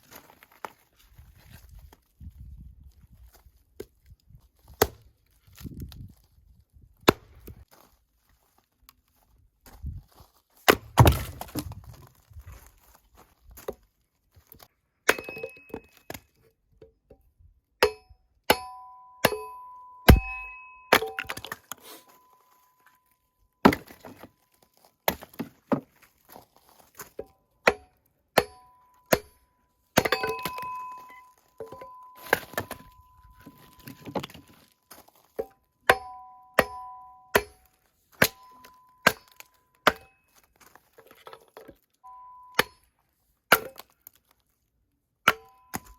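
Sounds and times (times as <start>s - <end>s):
firewood chopping strikes: 4.6s - 5.1s, 7.1s - 7.6s, 10.6s - 11.8s, 15.1s - 16.2s, 17.8s - 19.5s, 20.1s - 22.0s, 23.6s - 24.3s, 25.1s - 26.4s, 27.0s - 29.4s, 30.0s - 40.1s, 42.6s - 42.8s, 43.5s - 44.2s, 45.3s - 45.9s
metallic ring of splitting tool: 15.1s - 16.0s, 17.8s - 23.0s, 27.7s - 29.4s, 30.0s - 34.2s, 35.4s - 40.3s.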